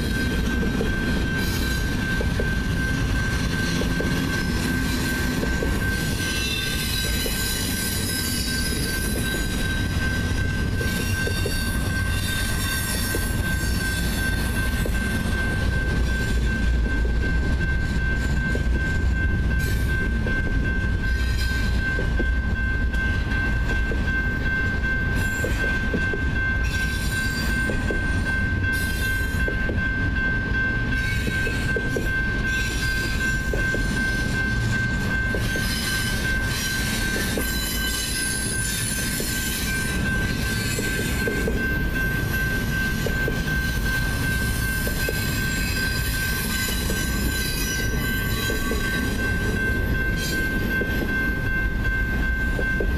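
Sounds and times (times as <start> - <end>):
train wheels rumbling on rails: 0.0 - 52.9
high wheel squeal: 1.0 - 15.3, 32.4 - 41.7, 43.5 - 50.8.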